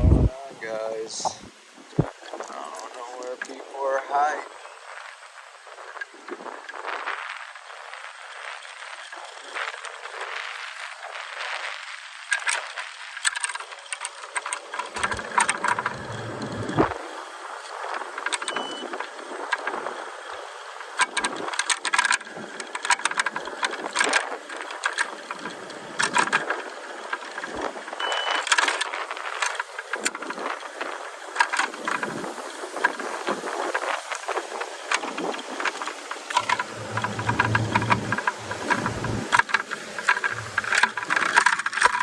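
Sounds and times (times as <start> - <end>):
low rumble: 0.0 - 0.4, 15.0 - 17.0, 36.4 - 39.4, 40.2 - 40.8
road and wind noise: 0.0 - 42.0
vehicle rattling and clicking: 13.3 - 42.0.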